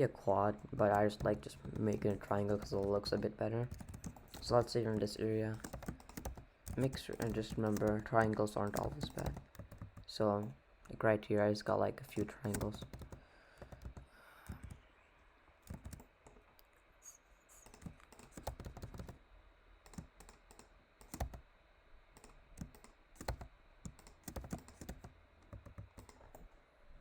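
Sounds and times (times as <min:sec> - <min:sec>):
keyboard keys clicking: 0:00.6 - 0:10.1, 0:12.2 - 0:14.8, 0:15.6 - 0:16.4, 0:17.6 - 0:19.2, 0:19.9 - 0:21.4, 0:22.2 - 0:26.4.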